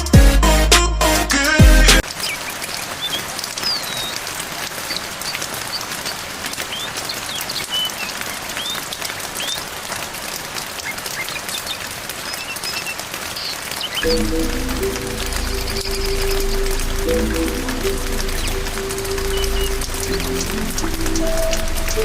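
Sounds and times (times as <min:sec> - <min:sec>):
songbirds chirping: 0:02.0 - 0:22.0
steady rain pattering: 0:02.0 - 0:22.0.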